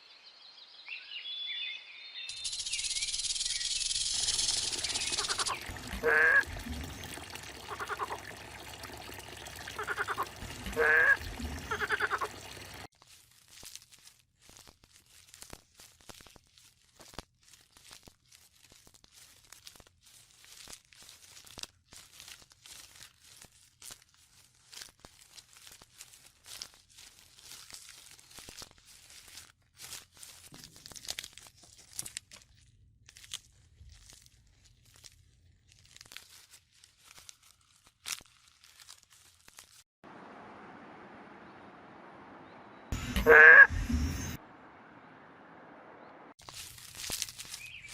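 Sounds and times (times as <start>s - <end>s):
soft crunching and crinkling clicks: 12.9s - 39.8s, 46.4s - 47.9s
animal calls bending in pitch: 42.9s - 44.4s.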